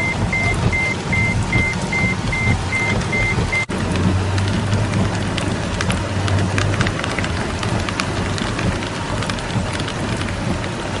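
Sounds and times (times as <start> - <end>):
low steady rumble: 0.0 - 11.0
rain drops on hard surfaces: 0.0 - 11.0.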